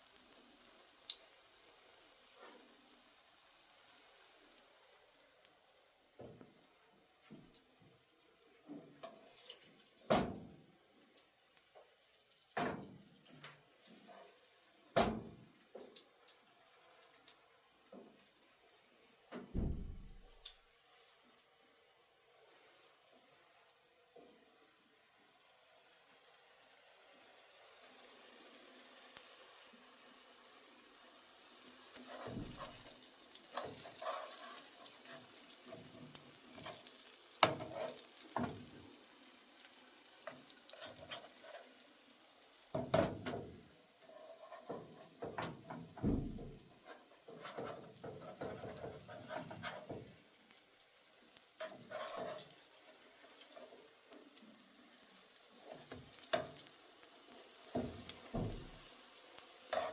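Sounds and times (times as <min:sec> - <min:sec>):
food sizzling faintly: 0:00.0 - 0:59.9
utensil stirring and scraping pan: 0:31.8 - 0:39.2, 0:40.2 - 0:42.2, 0:42.8 - 0:50.5, 0:51.3 - 0:54.2, 0:54.9 - 0:59.9.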